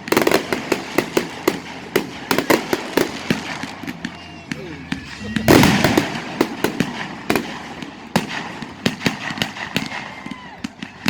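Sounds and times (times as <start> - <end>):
fireworks bangs and cracks: 0.0 - 11.0.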